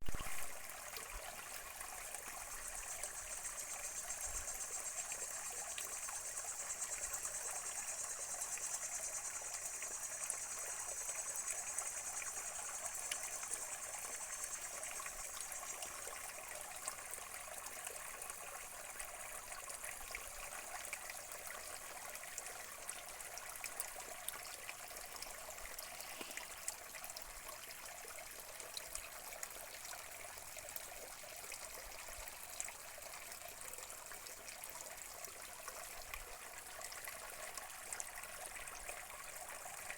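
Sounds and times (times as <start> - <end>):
stream trickling over rocks: 0.0 - 39.9
high hiss: 26.0 - 26.6.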